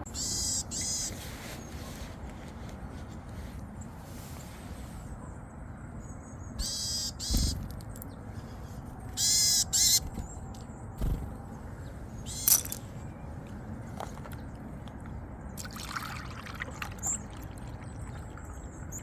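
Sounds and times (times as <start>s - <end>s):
bird harsh calls: 0.0s - 1.2s, 6.6s - 12.8s.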